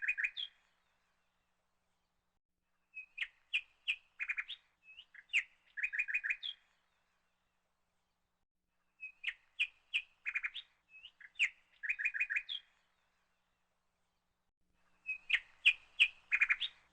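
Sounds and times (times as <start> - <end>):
songbird chirping and trilling: 0.0 - 1.4, 2.8 - 7.4, 8.9 - 13.6, 14.8 - 16.9.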